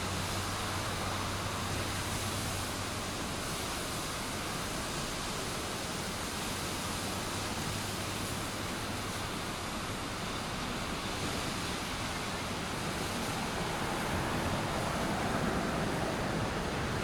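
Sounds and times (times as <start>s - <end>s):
fast-flowing floodwater rushing: 0.0s - 17.0s.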